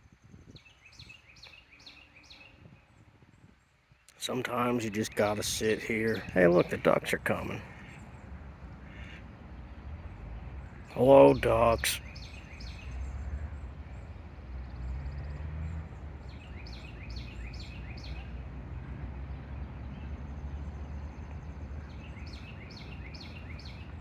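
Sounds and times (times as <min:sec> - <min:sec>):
small bird chirping: 0:20.4 - 0:24.0.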